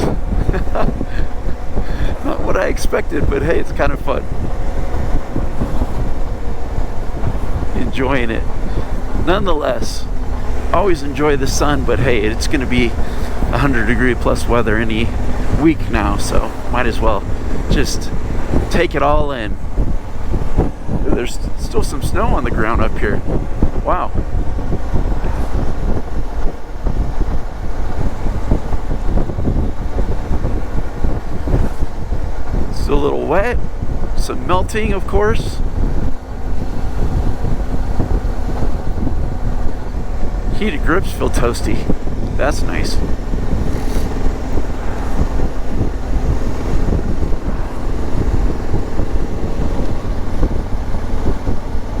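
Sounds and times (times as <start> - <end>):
motorcycle engine rumble: 0.0 - 52.0
wind buffeting microphone: 0.0 - 52.0
motorcycle engine running: 35.6 - 52.0.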